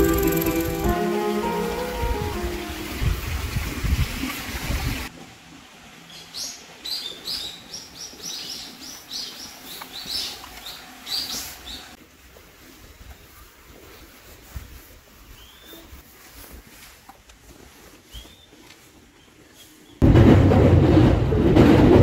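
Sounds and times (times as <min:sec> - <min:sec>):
small birds chirping: 0:06.1 - 0:12.0.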